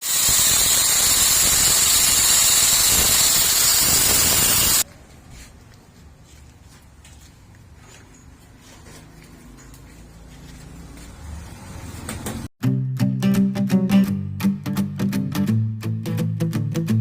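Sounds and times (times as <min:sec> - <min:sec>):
loud steady hiss: 0:00.0 - 0:04.8.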